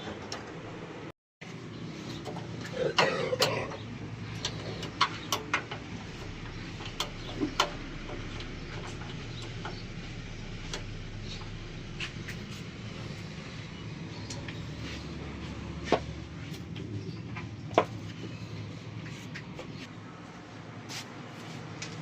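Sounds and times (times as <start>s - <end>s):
steady low hum: 1.4s - 21.8s
metal clicks and knocks: 2.2s - 9.9s.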